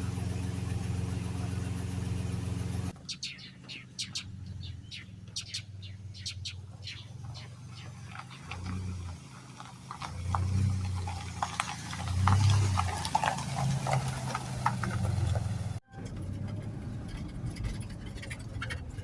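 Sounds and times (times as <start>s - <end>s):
short chirps and clicks: 3.0s - 8.5s.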